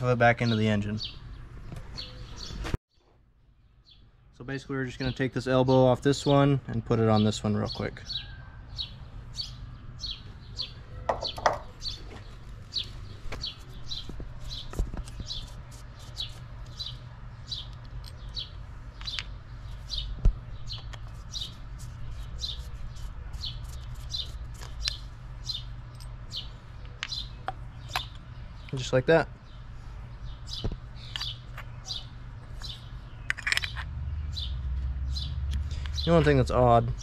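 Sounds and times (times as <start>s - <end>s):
small bird chirping: 7.1s - 37.0s
metal parts clicking and knocking: 33.2s - 33.9s.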